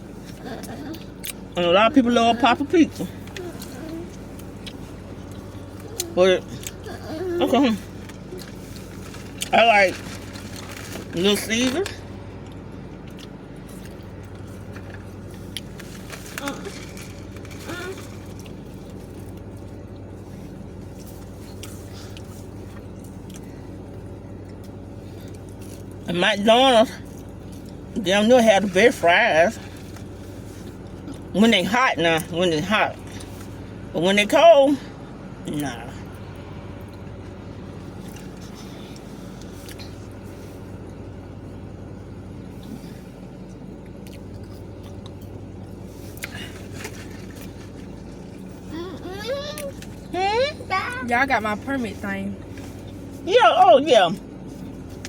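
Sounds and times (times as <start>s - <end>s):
steady low hum: 0.0s - 55.0s
person chewing food: 2.9s - 9.5s, 12.0s - 26.0s, 43.4s - 48.6s.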